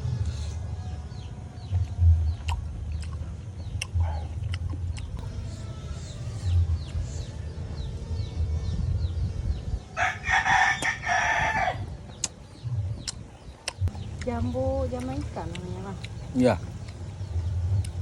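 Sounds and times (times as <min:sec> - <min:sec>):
soft low thumps: 0:01.7 - 0:05.5, 0:11.9 - 0:18.0
rooster crowing: 0:10.0 - 0:11.9.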